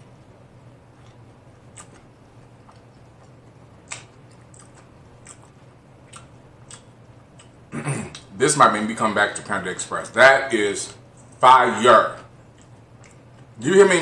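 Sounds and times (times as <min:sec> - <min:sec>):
person chewing food: 0:00.9 - 0:08.3, 0:12.4 - 0:13.6
wet mouth clicks and smacks: 0:01.0 - 0:08.3, 0:12.5 - 0:13.5.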